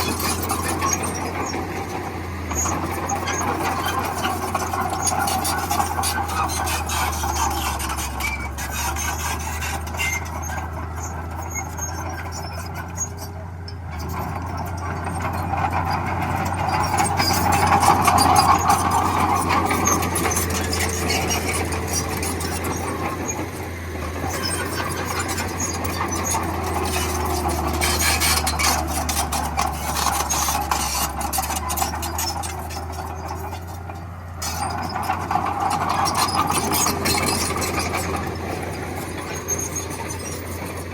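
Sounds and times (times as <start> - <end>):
bulldozer diesel engine drone: 0.0 - 40.9
bulldozer tracks clanking: 0.0 - 40.9.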